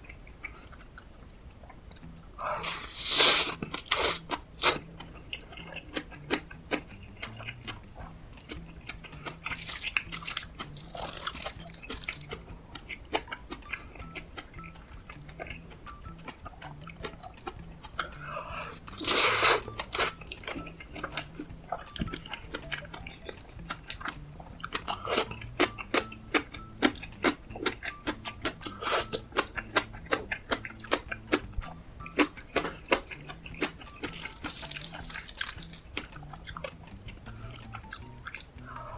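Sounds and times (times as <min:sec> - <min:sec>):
person biting and chewing: 0:01.9 - 0:12.4, 0:13.0 - 0:38.7.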